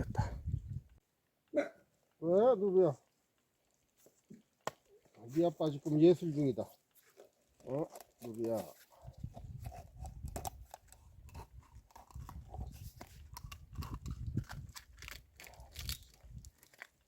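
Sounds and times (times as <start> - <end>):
knife cutting plastic bottle: 7.7 - 17.0.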